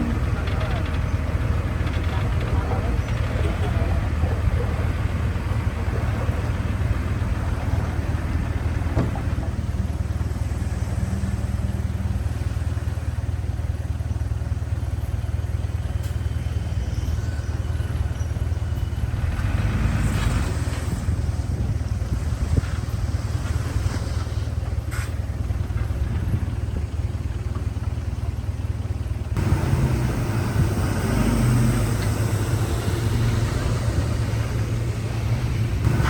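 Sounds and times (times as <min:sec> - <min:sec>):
heavy diesel machinery engine drone: 0:00.0 - 0:36.0.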